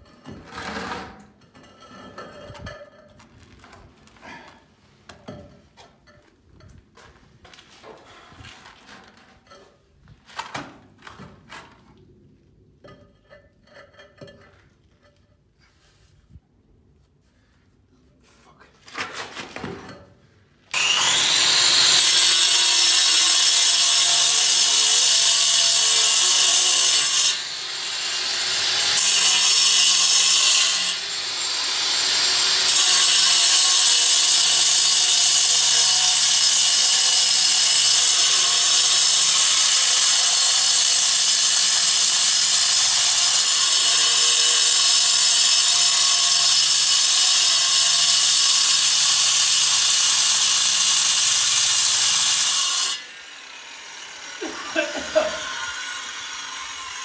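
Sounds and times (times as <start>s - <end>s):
power tool whining: 20.7s - 24.4s.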